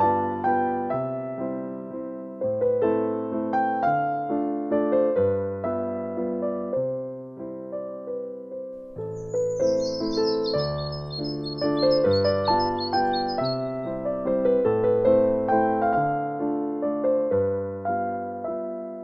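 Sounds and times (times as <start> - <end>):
gentle piano music: 0.0 - 19.0
bird chirping: 8.9 - 16.2.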